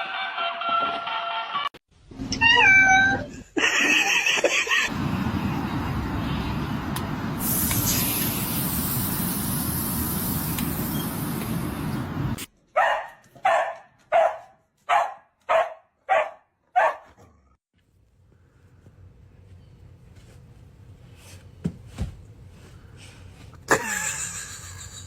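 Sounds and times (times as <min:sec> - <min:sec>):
dog barking: 0:12.7 - 0:17.2.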